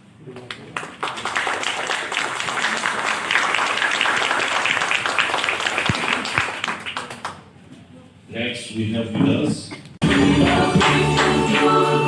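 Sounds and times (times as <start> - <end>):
audience applause: 0.3 - 7.4.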